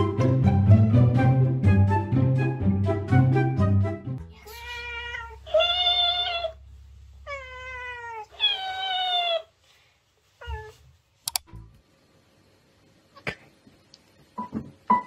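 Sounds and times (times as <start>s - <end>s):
cat meowing: 4.3s - 6.6s, 7.3s - 9.5s
sharp click: 11.2s - 11.5s.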